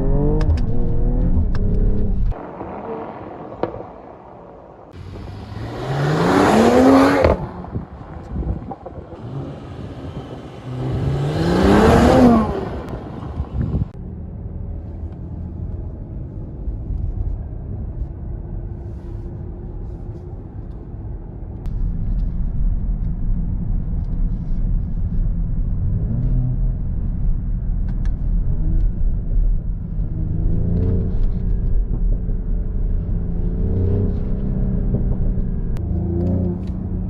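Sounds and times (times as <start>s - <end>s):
car engine pulling: 0.0s - 14.0s
deep road rumble: 0.0s - 37.0s.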